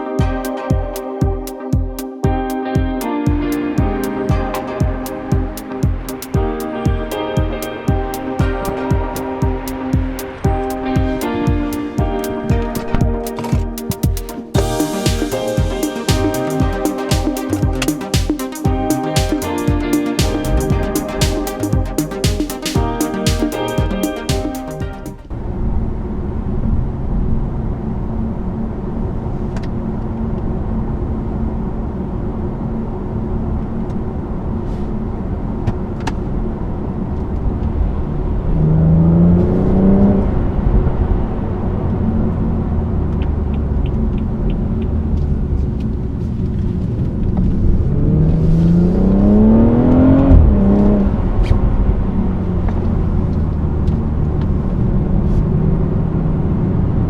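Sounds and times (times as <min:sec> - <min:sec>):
road noise inside car: 0:25.2 - 0:57.0
car engine accelerating: 0:37.7 - 0:57.0.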